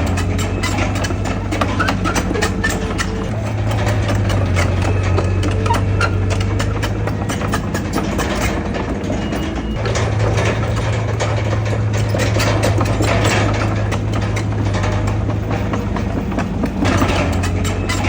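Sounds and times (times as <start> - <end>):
heavy diesel engine running: 0.0 - 18.0
metal clanks and knocks: 0.0 - 18.0.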